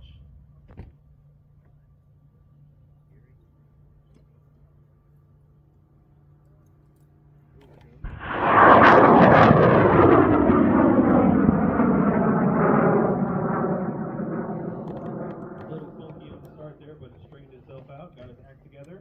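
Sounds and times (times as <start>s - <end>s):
rocket motor roaring: 8.1s - 16.6s.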